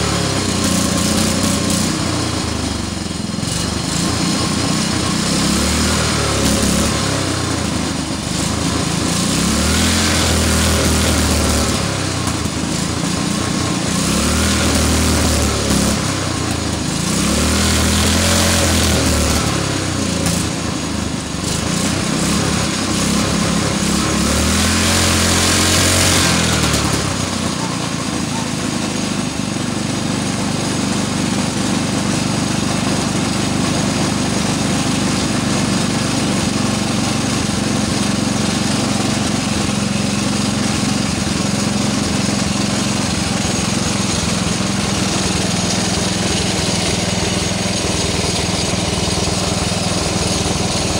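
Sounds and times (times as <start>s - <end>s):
go-kart engine revving: 0.0s - 50.9s.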